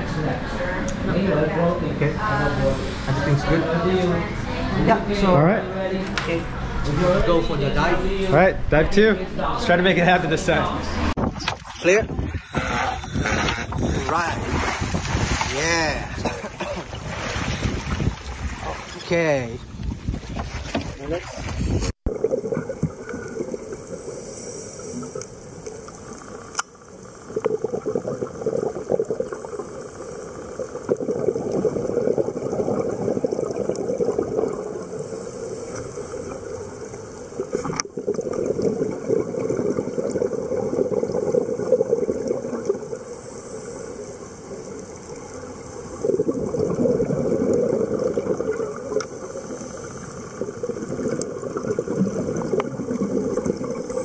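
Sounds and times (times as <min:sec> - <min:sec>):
underwater exhalation bubbles: 0:22.1 - 0:54.0
watery hiss: 0:22.2 - 0:54.0.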